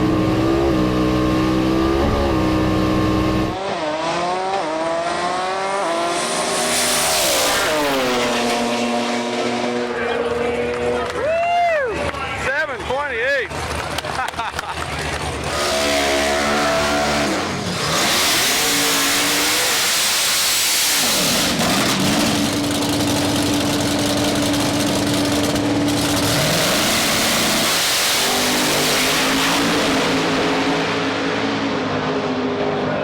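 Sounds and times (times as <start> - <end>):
drag racing engine: 0.0 - 11.2, 12.0 - 33.0
loud rushing noise: 4.6 - 10.4.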